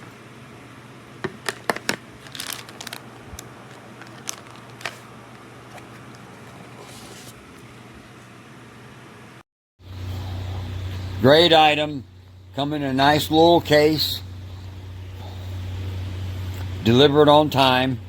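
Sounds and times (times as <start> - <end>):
low steady hum: 0.0 - 18.0
packaging crinkling rustle: 1.4 - 7.2.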